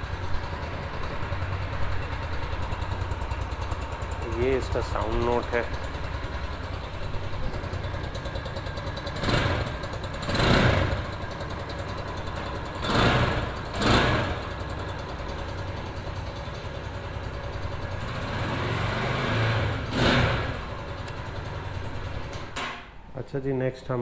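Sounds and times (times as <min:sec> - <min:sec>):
motorcycle engine idling: 0:00.0 - 0:23.1
throttle blips revving engine: 0:09.1 - 0:11.3, 0:12.8 - 0:14.7, 0:18.0 - 0:21.8.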